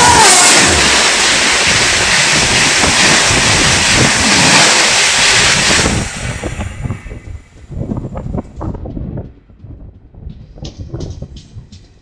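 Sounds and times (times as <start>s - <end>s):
express train passing at speed: 0.0s - 7.8s.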